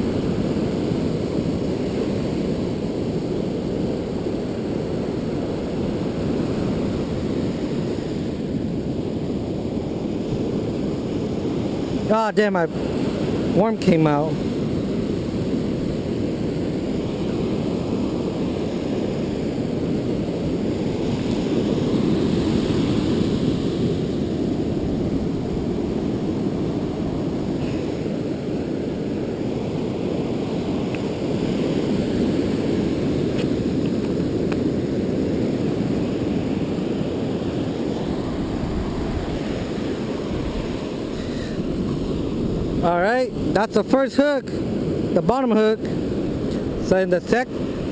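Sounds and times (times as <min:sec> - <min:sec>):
ocean surf breaking: 0:00.0 - 0:47.9
wind buffeting microphone: 0:14.4 - 0:43.6.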